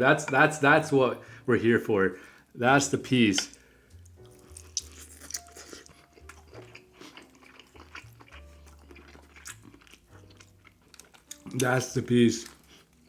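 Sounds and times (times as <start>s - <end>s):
close chewing with lip-smacking: 3.5s - 11.7s, 12.4s - 13.0s.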